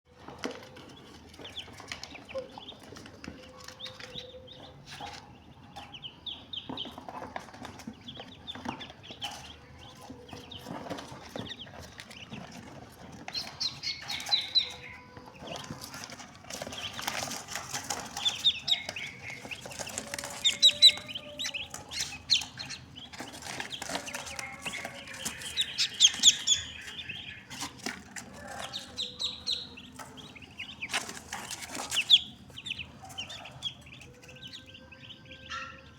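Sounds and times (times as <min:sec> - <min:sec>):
ducks calling: 0:01.2 - 0:35.9
wings flapping: 0:27.6 - 0:33.6.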